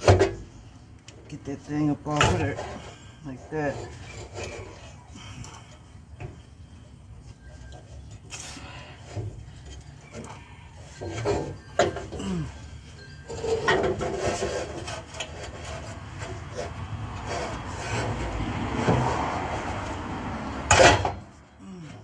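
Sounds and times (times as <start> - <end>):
metal scraping and rubbing: 1.4 - 21.4
loud metal clank: 20.7 - 21.2.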